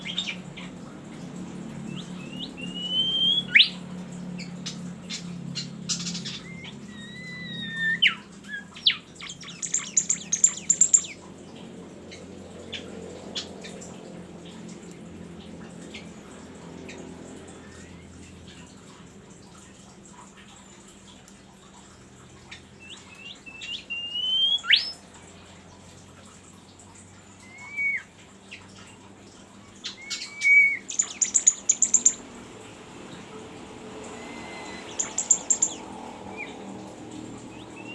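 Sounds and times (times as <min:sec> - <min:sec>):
bird singing: 0:01.8 - 0:11.3, 0:22.5 - 0:25.1, 0:27.3 - 0:29.0, 0:29.6 - 0:32.3, 0:33.9 - 0:37.9
songbird whistled notes: 0:02.0 - 0:03.8, 0:06.2 - 0:11.1, 0:22.8 - 0:25.0, 0:27.4 - 0:28.1, 0:29.9 - 0:32.2.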